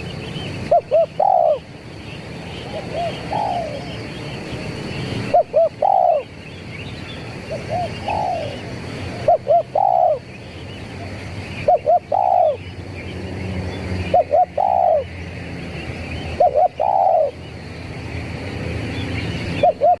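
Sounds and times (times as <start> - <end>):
dove cooing: 0.6 - 1.8, 2.5 - 4.1, 5.2 - 6.4, 7.4 - 10.3, 11.6 - 12.6, 14.1 - 15.2, 16.3 - 17.4, 19.6 - 20.0.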